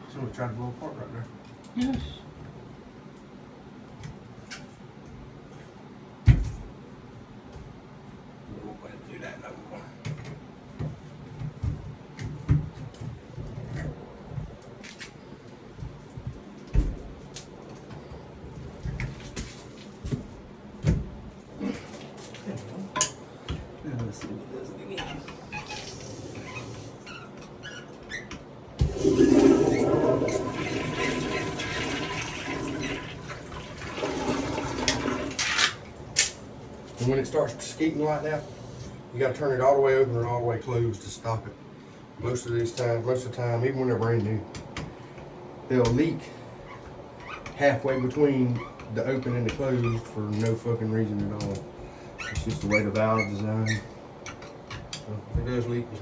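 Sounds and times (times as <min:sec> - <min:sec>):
toilet flushing water rushing: 0:28.8 - 0:35.9.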